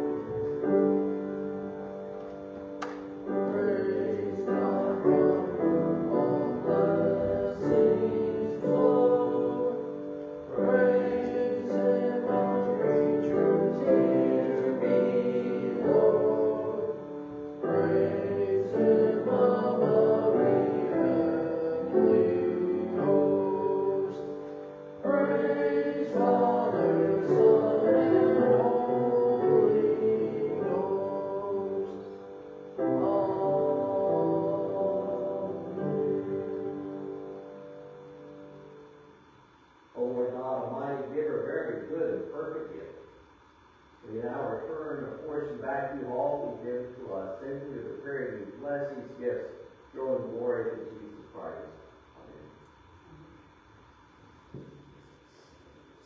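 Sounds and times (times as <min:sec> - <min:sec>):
church choir singing: 0:00.0 - 0:39.1
piano accompaniment: 0:00.0 - 0:39.2.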